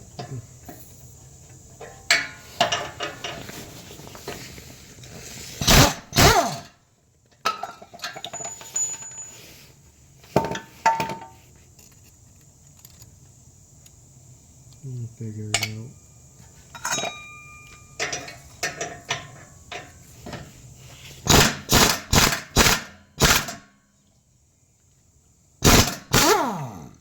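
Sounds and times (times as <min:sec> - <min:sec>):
metal tools clanking on exhaust: 0:00.1 - 0:06.7, 0:07.4 - 0:09.6, 0:10.3 - 0:11.4, 0:15.3 - 0:20.6.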